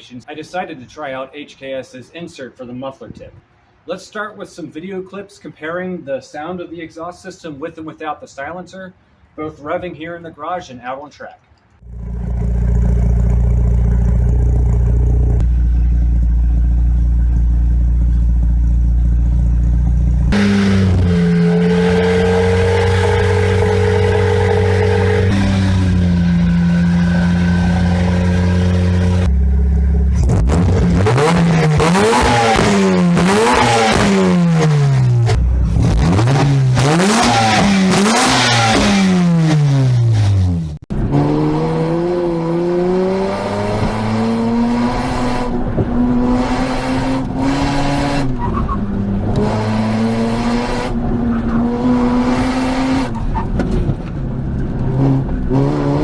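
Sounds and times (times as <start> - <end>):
rotary engine revving: 11.8 - 53.6.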